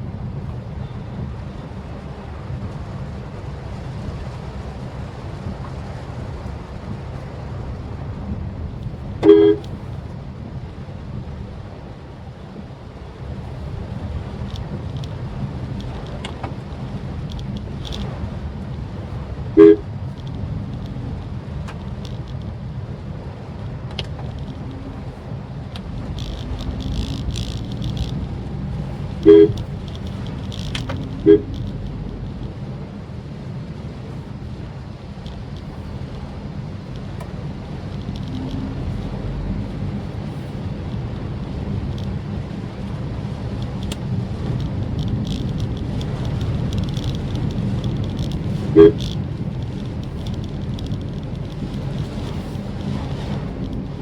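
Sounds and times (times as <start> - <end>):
car engine and road rumble: 0.0 - 54.0
car horn toot: 9.2 - 9.9, 19.5 - 19.9, 29.1 - 29.8, 31.0 - 31.7, 48.6 - 49.0.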